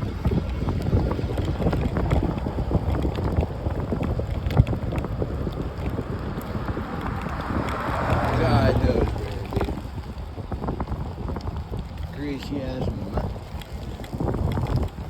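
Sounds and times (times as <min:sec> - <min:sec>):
small clicks and rattles: 0:00.0 - 0:15.0
wind buffeting microphone: 0:00.0 - 0:15.0.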